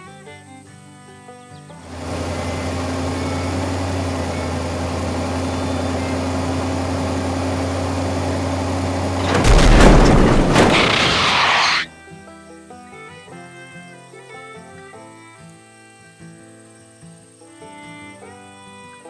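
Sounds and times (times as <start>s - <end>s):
low mechanical hum: 1.9s - 11.8s
loud boom: 9.2s - 11.9s
rushing hiss: 9.3s - 11.8s.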